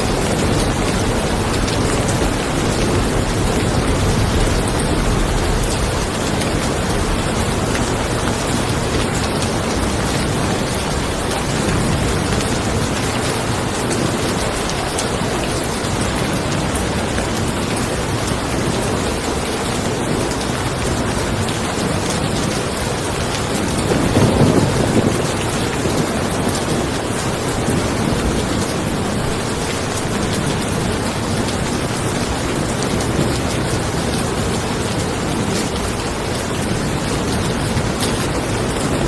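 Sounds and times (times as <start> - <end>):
low roll of thunder: 0.0 - 12.7, 23.8 - 29.6
steady rain falling: 0.0 - 39.0.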